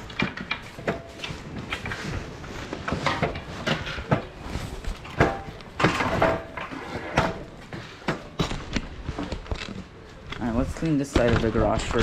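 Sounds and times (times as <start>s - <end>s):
objects knocking and clattering: 0.0s - 12.0s.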